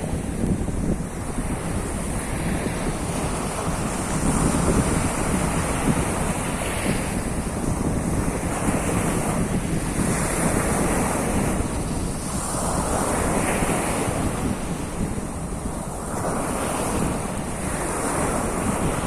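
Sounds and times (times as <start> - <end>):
waves breaking: 0.0 - 19.0
wind rumbling on microphone: 0.0 - 19.0.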